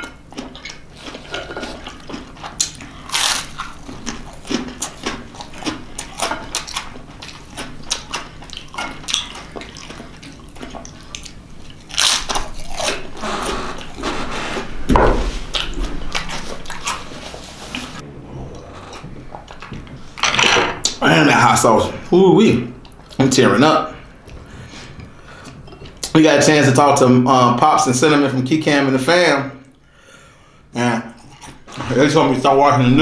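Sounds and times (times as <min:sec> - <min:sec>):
man chewing food: 0:00.0 - 0:21.0, 0:22.7 - 0:23.3, 0:24.0 - 0:26.1, 0:29.6 - 0:32.0
crunching bites: 0:00.4 - 0:13.2.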